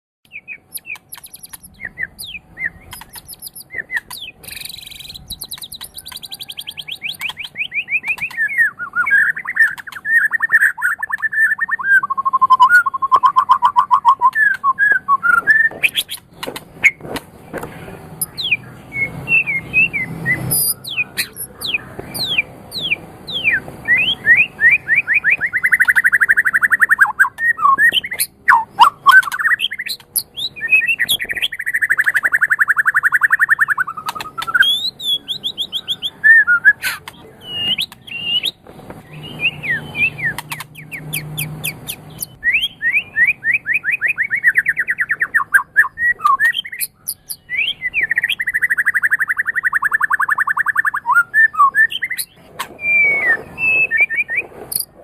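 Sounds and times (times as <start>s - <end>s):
songbird singing trills: 0.3s - 55.0s
bird clicks: 0.7s - 1.9s, 2.8s - 8.6s, 9.6s - 10.2s, 27.3s - 30.2s, 33.9s - 34.6s, 40.2s - 42.3s.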